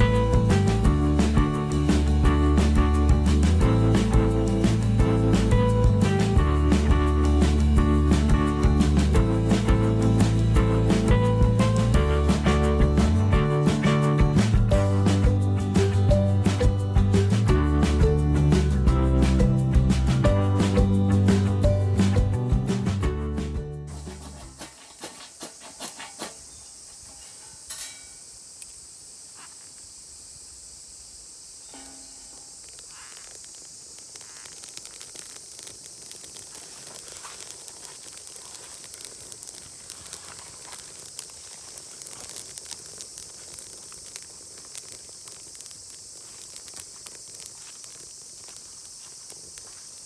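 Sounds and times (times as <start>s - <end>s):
high-pitched insect chorus: 0.0s - 22.6s, 23.9s - 50.0s
small clicks and crackles: 31.7s - 50.0s.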